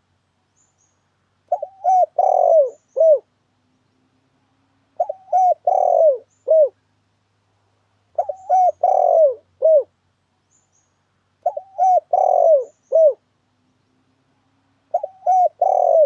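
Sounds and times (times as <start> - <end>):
dove cooing: 1.5 - 3.3, 5.0 - 6.8, 8.2 - 9.9, 11.4 - 13.2, 14.9 - 16.0.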